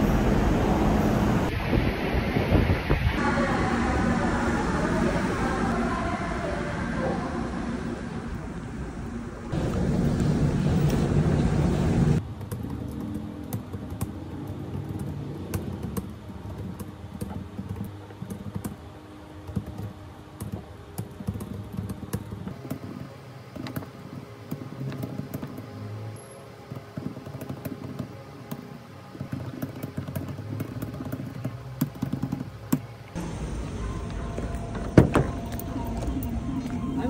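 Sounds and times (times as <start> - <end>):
metro train noise: 0.0 - 12.3, 33.1 - 37.0
typing on laptop keyboard: 12.2 - 25.7, 26.7 - 32.9.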